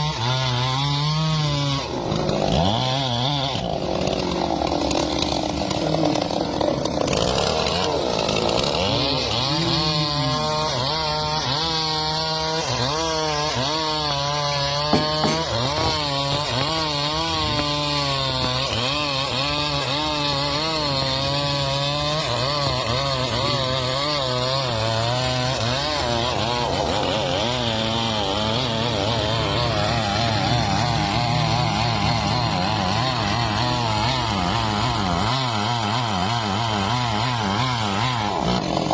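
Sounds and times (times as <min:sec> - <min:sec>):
chainsaw cutting wood: 0:00.0 - 0:38.9
loud knock: 0:14.5 - 0:16.0.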